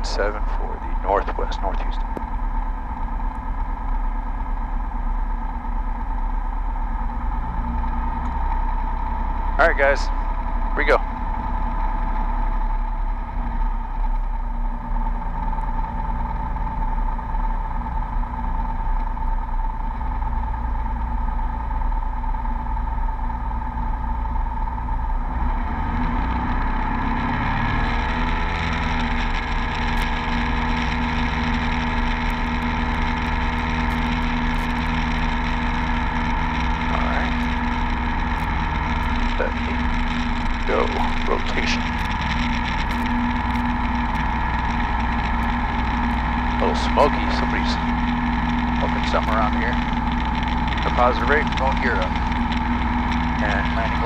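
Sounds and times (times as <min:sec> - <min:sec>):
piston engine and propeller: 0:00.0 - 0:54.0.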